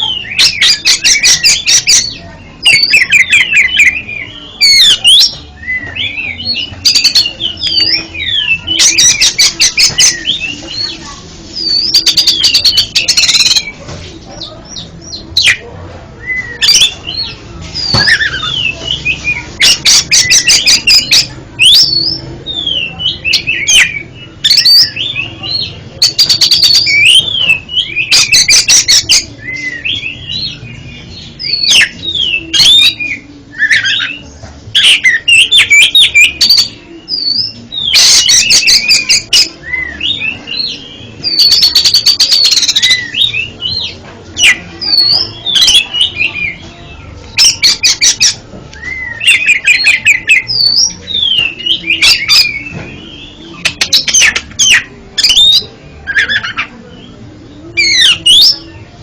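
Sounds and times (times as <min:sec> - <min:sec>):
bird singing whistled notes: 0:16.2 - 0:58.7.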